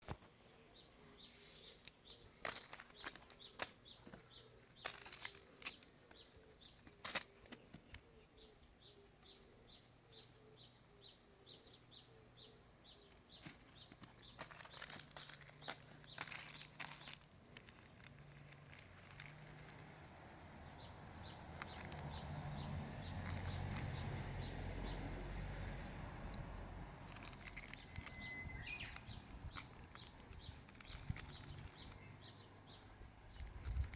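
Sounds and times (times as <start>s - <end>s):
bird chirping: 0.5s - 33.9s
light clicks and rustles: 1.6s - 8.1s, 13.1s - 20.1s, 20.7s - 24.8s, 26.3s - 33.9s.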